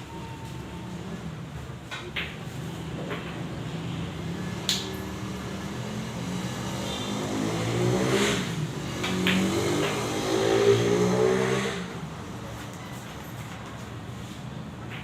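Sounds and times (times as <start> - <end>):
pool balls clacking: 1.9 - 3.6, 9.0 - 10.3
vehicle engine revving: 4.3 - 12.0.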